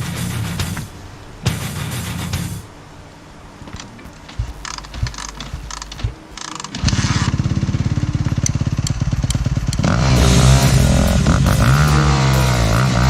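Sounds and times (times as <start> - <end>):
dirt bike engine running: 0.0 - 2.7, 3.7 - 13.0
light clicks and knocks: 3.6 - 7.0.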